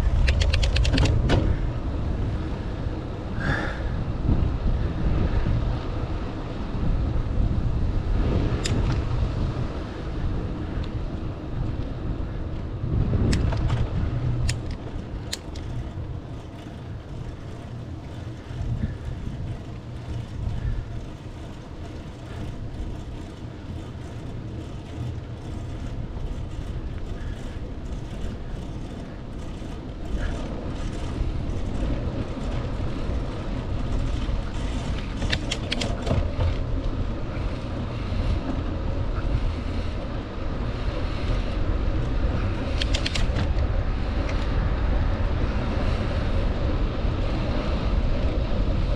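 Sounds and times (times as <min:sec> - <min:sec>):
wind rumbling on microphone: 0:00.0 - 0:48.9
sharp clicks: 0:00.1 - 0:01.2, 0:42.6 - 0:43.5.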